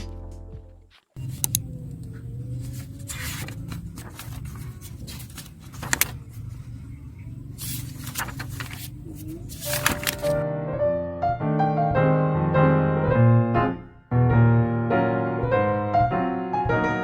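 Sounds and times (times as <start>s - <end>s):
rustles: 0.9s - 10.4s.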